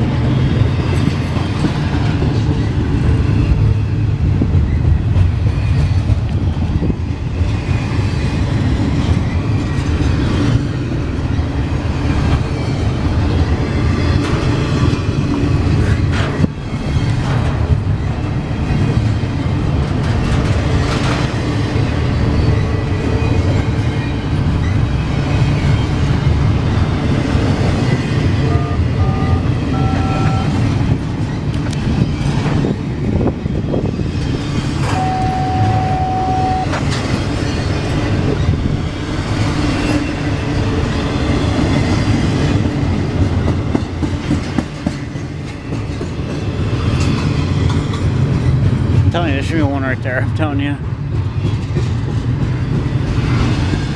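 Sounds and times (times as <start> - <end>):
train wheels rumbling on rails: 0.0 - 53.9
short high beeps: 28.5 - 30.5, 34.9 - 36.7
steady tone: 34.9 - 36.8.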